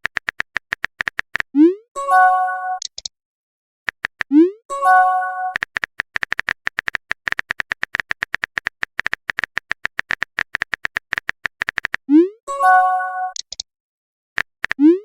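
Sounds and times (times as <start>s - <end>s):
rapid typing clicks: 0.0s - 1.5s, 3.9s - 4.3s, 5.5s - 12.0s, 14.4s - 14.8s
chime chord: 4.7s - 5.5s.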